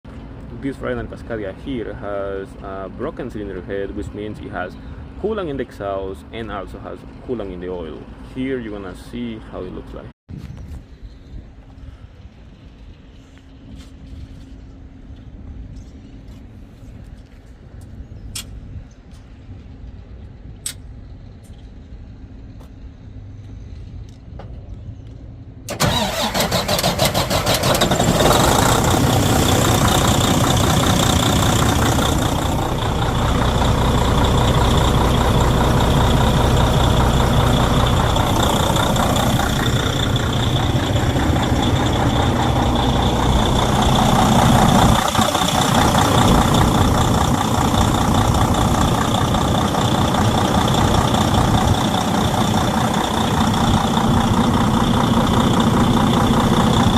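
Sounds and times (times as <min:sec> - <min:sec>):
diesel engine starting and running: 0:00.0 - 0:10.1, 0:25.0 - 0:56.9.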